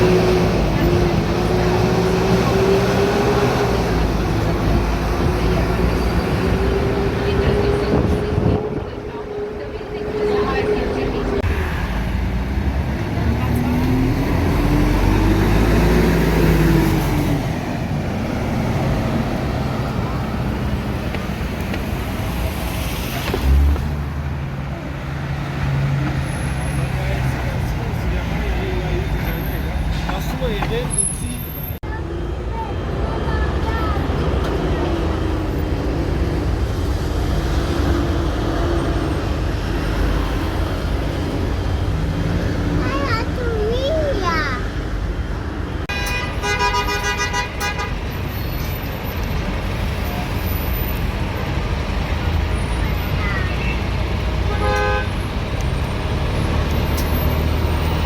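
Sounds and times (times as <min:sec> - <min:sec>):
road noise: 0:00.0 - 0:58.0
traffic and engines rumbling: 0:00.0 - 0:58.0
vehicle horn blast: 0:45.9 - 0:48.0, 0:54.5 - 0:55.2.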